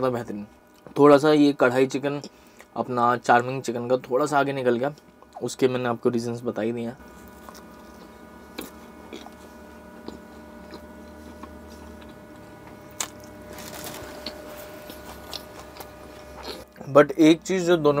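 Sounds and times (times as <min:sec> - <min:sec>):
faint steady hum: 0:00.0 - 0:18.0
chewing with mouth closed: 0:07.1 - 0:13.4, 0:14.2 - 0:16.8.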